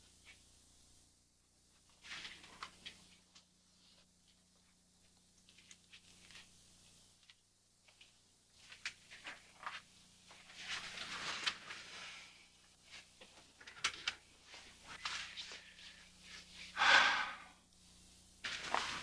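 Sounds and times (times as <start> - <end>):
faint rustling and shuffling: 0.0 - 16.8, 17.8 - 19.0.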